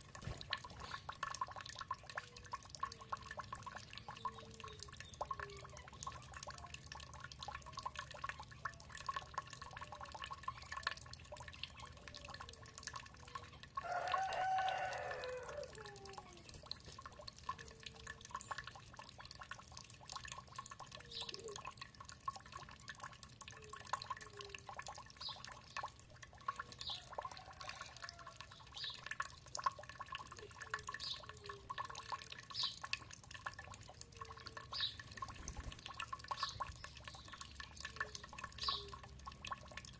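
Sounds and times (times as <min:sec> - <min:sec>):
water dripping: 0:00.0 - 0:39.9
rooster crowing: 0:13.8 - 0:16.2, 0:27.1 - 0:28.4
bird chirps: 0:36.3 - 0:39.0.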